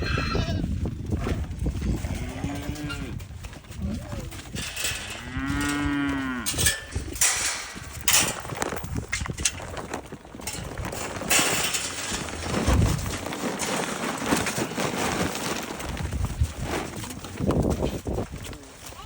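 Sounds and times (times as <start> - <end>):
rustling: 1.2 - 19.0
cow mooing: 2.1 - 3.2, 4.9 - 6.8.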